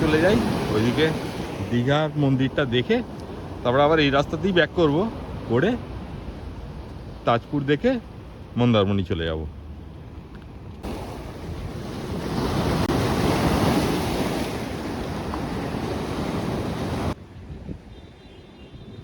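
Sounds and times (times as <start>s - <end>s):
sea waves breaking: 0.0s - 8.5s, 10.0s - 17.2s
wind buffeting microphone: 9.9s - 19.0s.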